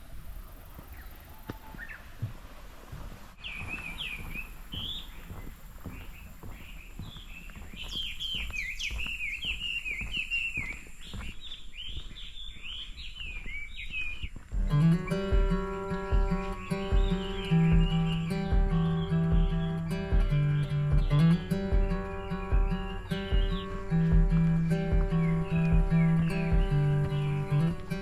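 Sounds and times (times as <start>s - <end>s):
small birds chirping: 0.0s - 28.0s
acoustic guitar music: 14.6s - 28.0s.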